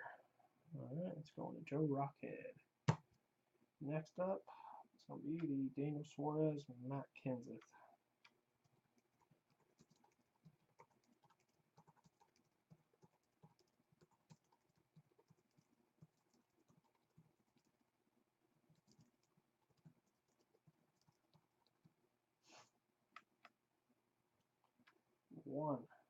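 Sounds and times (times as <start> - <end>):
keyboard typing: 8.2 - 17.7, 18.6 - 22.0.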